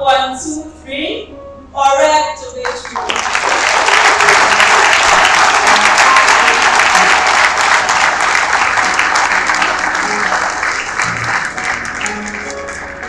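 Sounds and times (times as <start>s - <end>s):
audience applauding and cheering: 2.6s - 13.0s.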